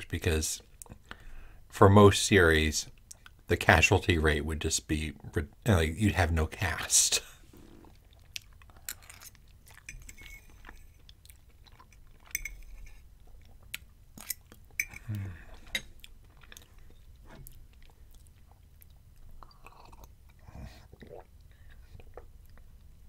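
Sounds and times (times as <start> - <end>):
wet chewing: 7.6 - 14.8.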